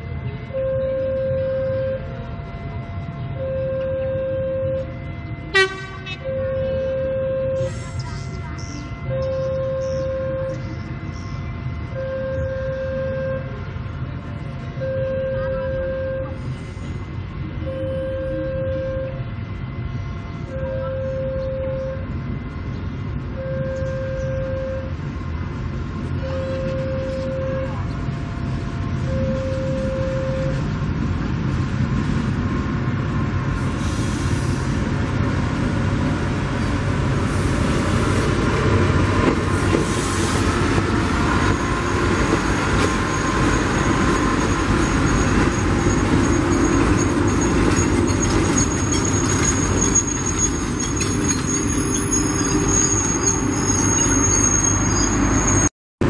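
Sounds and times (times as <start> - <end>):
train rumbling past: 0.0 - 55.7
high wheel squeal: 41.4 - 55.7.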